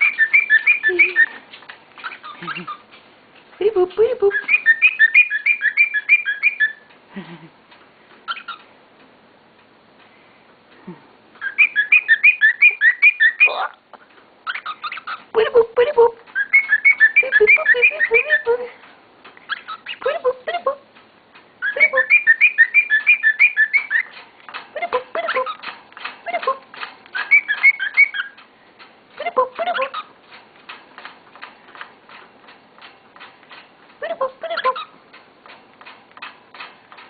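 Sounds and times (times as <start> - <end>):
bird chirping and whistling: 0.0 - 1.4, 2.0 - 2.8, 4.3 - 6.9, 11.4 - 13.8, 14.5 - 15.2, 16.4 - 18.5, 19.5 - 20.1, 21.6 - 24.2, 27.2 - 28.4, 34.1 - 34.9
faint steady ticking: 20.7 - 21.7, 22.6 - 37.0.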